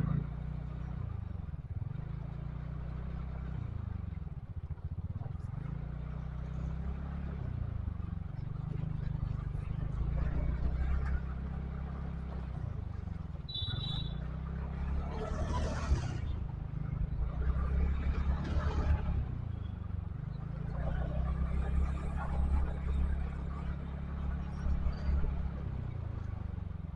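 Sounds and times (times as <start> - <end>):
vehicle engine running: 0.0 - 26.9
short high beep: 13.5 - 14.2.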